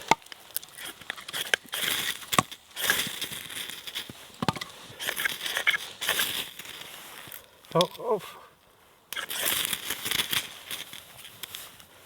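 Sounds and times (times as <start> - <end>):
ferro rod scraping hiss: 0.6 - 7.4, 9.1 - 11.8.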